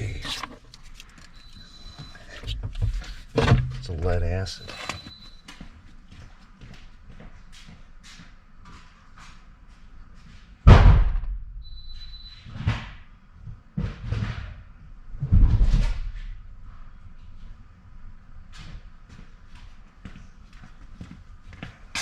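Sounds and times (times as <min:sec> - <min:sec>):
heavy thumps and bangs: 0:02.4 - 0:04.2, 0:10.6 - 0:11.6, 0:15.2 - 0:16.2.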